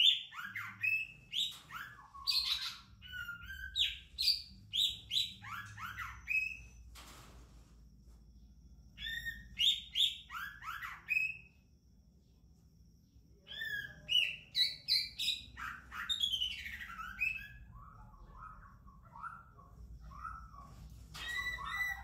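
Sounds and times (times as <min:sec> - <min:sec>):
bird singing whistled notes: 0:00.0 - 0:06.8, 0:09.0 - 0:11.6, 0:13.4 - 0:22.0.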